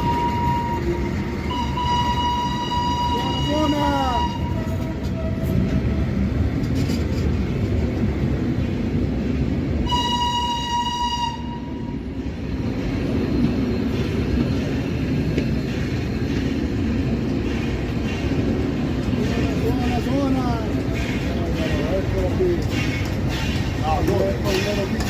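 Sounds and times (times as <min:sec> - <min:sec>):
train whistle blast: 0:00.0 - 0:05.6, 0:09.8 - 0:12.0
steam train rumbling: 0:00.0 - 0:25.0.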